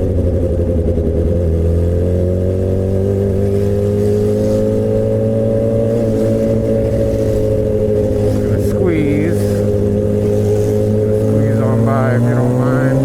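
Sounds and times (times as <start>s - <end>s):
motorcycle engine at steady revs: 0.0s - 13.0s.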